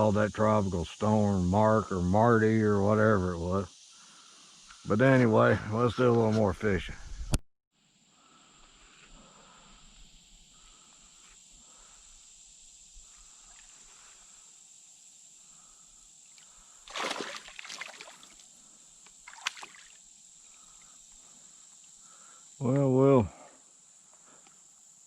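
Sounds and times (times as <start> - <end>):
high hum of insects: 0.0 - 25.0
water splashing against canoe: 16.8 - 18.4, 19.2 - 20.0
faint chirps: 18.0 - 24.8.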